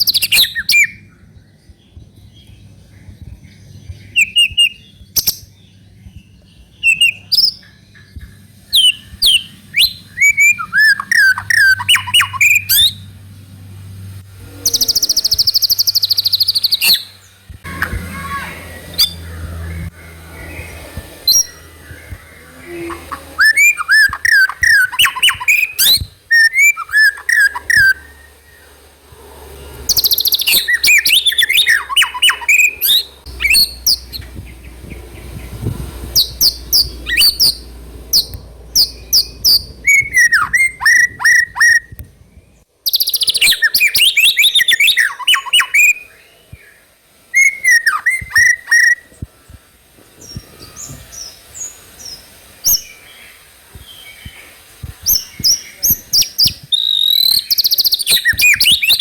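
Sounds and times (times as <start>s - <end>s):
bird singing whistled phrases: 0.0s - 1.1s, 4.1s - 5.5s, 6.8s - 7.7s, 8.7s - 13.0s, 14.6s - 28.5s, 29.9s - 42.0s, 42.8s - 46.2s, 47.3s - 49.1s, 55.1s - 59.0s.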